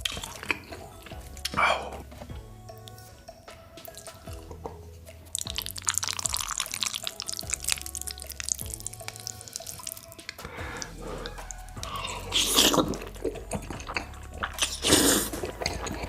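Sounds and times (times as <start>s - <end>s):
wet crackling eating sounds: 0.0s - 3.1s, 3.8s - 16.0s
background music: 0.0s - 16.0s.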